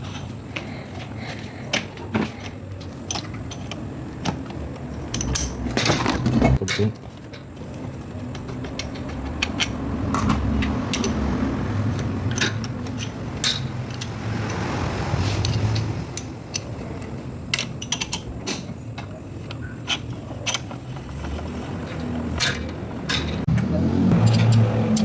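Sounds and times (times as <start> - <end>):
metal tools clinking: 21.8 - 23.4.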